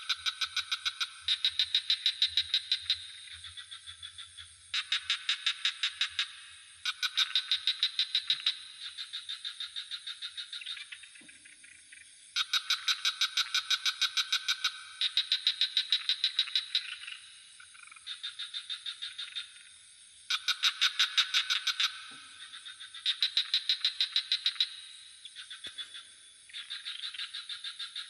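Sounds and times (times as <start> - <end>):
frogs calling in pulsed trills: 0.0 - 28.0.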